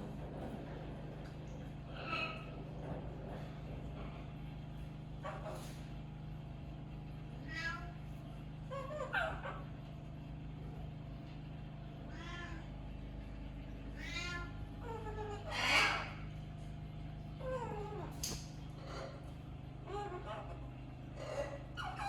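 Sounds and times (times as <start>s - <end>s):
steady low hum: 0.0s - 22.0s
meow-like animal calls: 7.4s - 8.0s, 12.1s - 12.7s, 14.0s - 16.3s.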